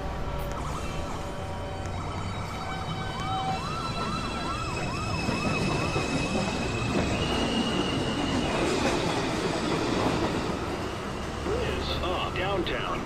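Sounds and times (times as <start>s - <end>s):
wavering whine: 0.0s - 9.5s
high steady whining tones: 0.0s - 12.8s
subway train rumble: 0.0s - 13.0s.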